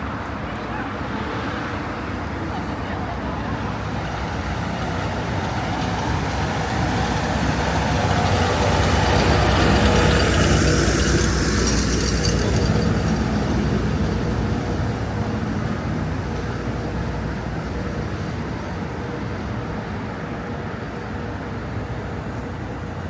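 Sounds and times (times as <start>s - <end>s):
low traffic rumble: 0.0s - 23.0s
passing vehicle: 0.0s - 23.0s.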